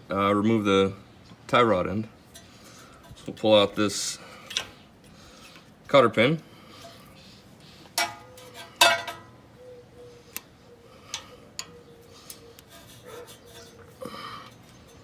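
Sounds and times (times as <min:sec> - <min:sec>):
light metal ticks: 0:11.1 - 0:12.7.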